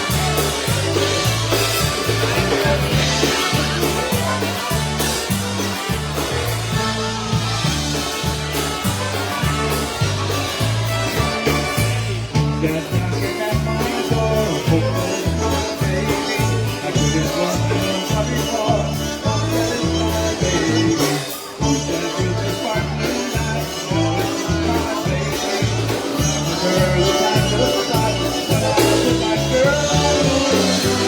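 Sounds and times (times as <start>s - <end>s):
oom-pah bass beat: 0.0s - 31.0s
polka band playing: 0.0s - 31.0s
person singing: 11.4s - 31.0s.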